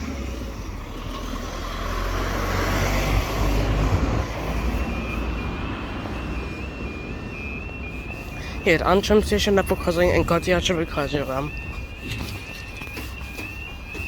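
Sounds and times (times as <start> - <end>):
vehicle passing rumble: 0.0 - 11.1
level crossing two-tone alarm: 0.0 - 14.0.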